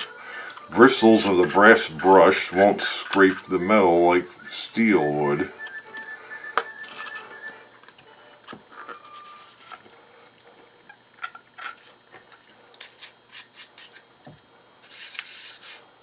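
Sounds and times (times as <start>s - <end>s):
wire brush scrubbing metal: 0.7s - 3.6s, 6.8s - 7.4s, 14.8s - 15.9s.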